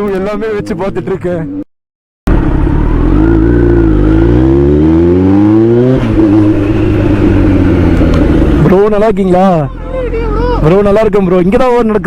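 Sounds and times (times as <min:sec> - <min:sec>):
motorcycle engine accelerating: 0:02.3 - 0:08.9.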